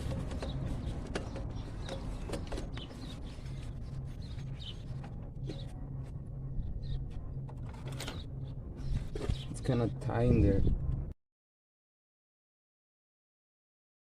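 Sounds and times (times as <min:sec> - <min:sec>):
low hum: 0:00.0 - 0:11.2.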